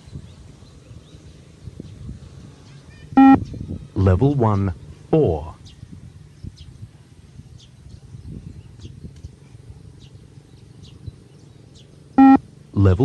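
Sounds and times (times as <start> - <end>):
faint high bird chirps: 2.6 - 3.8, 10.0 - 12.4.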